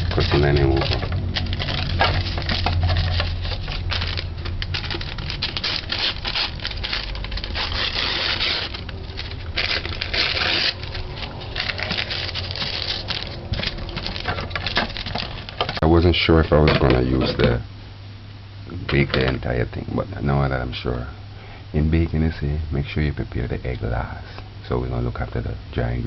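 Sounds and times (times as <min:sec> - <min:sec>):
rustling: 0:00.0 - 0:15.8
steady low hum: 0:00.0 - 0:26.0.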